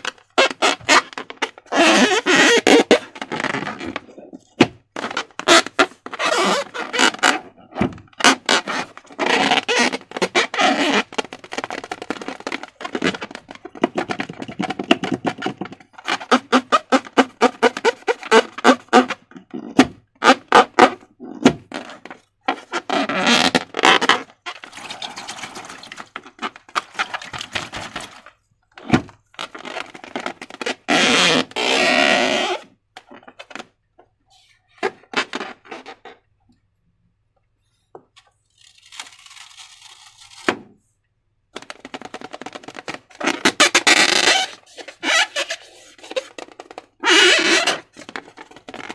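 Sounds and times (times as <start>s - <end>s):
rubbery squeaks: 0.0s - 33.7s, 34.7s - 36.2s, 41.6s - 48.9s.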